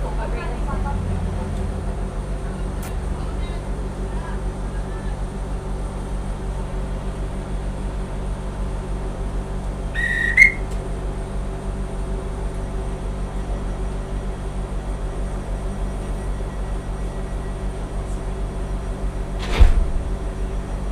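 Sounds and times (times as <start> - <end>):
train hum: 0.0 - 20.9
railway whistle blast: 9.9 - 10.7.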